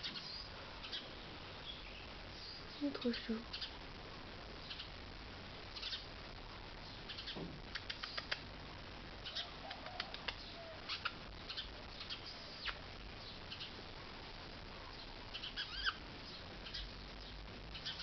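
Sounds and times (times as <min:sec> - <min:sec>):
birds making scratchy clicks: 0:07.0 - 0:08.5, 0:09.2 - 0:13.8.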